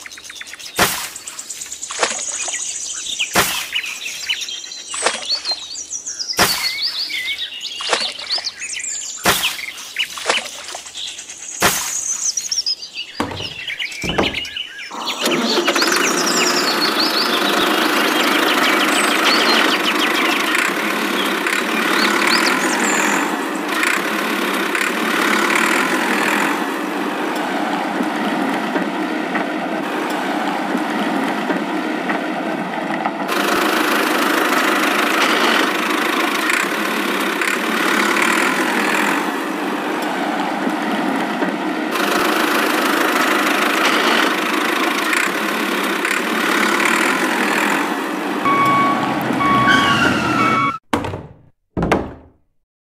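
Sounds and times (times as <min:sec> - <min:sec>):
birds chirping: 0:00.0 - 0:27.3, 0:41.6 - 0:50.8
small motor running: 0:13.4 - 0:26.7, 0:33.3 - 0:39.4, 0:42.0 - 0:49.8
sharp clicks: 0:34.9 - 0:39.1, 0:43.7 - 0:47.7.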